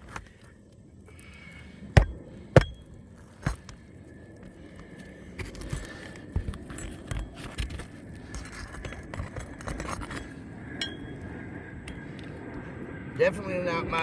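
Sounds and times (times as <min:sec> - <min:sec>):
scraping on asphalt shingle: 0:01.2 - 0:10.7.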